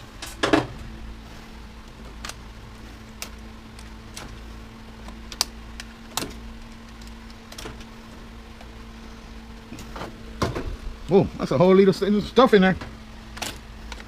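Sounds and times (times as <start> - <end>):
steady low hum: 0.0 - 14.0
sharp clicks and light knocks: 5.0 - 7.9.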